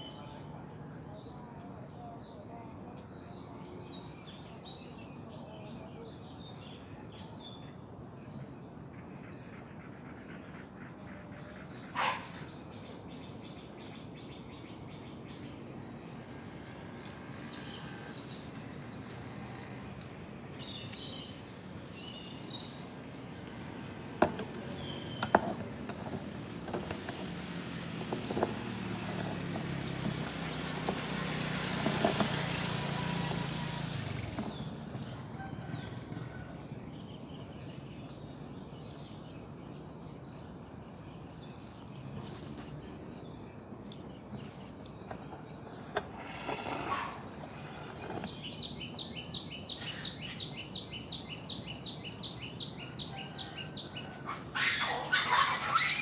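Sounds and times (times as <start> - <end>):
insects trilling: 0.0 - 56.0
vehicle motor humming: 15.6 - 39.0, 41.4 - 54.2
bird chirps: 44.0 - 56.0.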